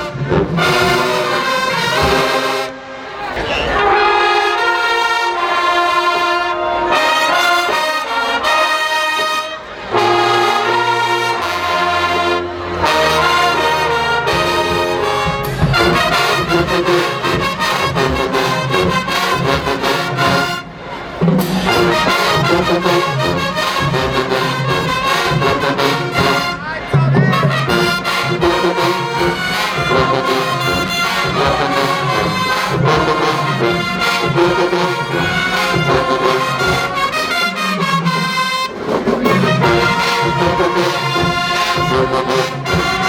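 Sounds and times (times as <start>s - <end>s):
percussion: 0.0s - 2.7s, 9.9s - 43.0s
brass playing held chords: 0.0s - 43.0s
low bass-horn notes: 0.0s - 43.0s.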